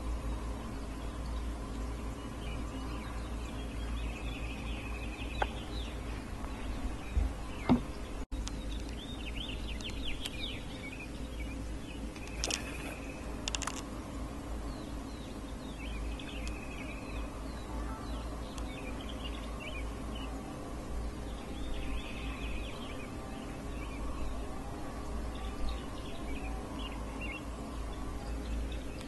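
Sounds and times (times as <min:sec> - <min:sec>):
low outdoor rumble: 0:00.0 - 0:29.0
songbirds chirping: 0:00.0 - 0:29.0
sharp clicks: 0:12.1 - 0:13.9.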